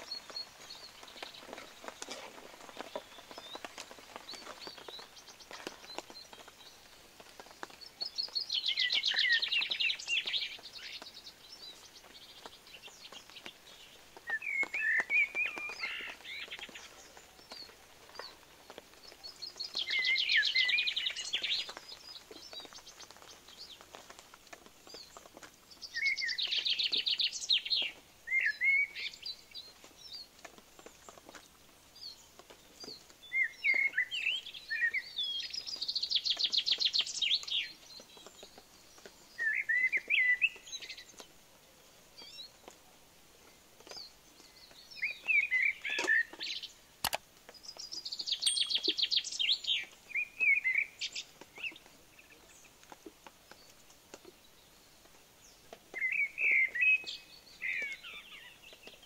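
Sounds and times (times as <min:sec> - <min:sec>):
songbird trilling and chirping: 0:00.0 - 0:24.0, 0:24.8 - 0:30.3, 0:30.9 - 0:41.3, 0:43.8 - 0:52.9, 0:53.5 - 0:59.0.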